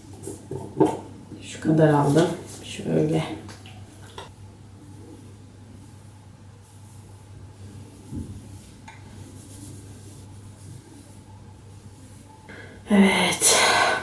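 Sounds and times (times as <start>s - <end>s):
steady low hum: 2.5s - 14.0s
soft bump: 8.0s - 8.6s.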